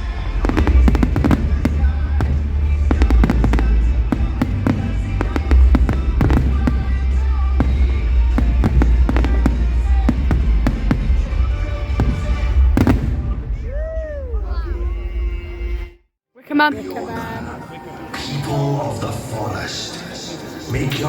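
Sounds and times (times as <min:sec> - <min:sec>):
fireworks cracking and banging: 0:00.0 - 0:14.2
heavy low rumble: 0:00.0 - 0:15.9.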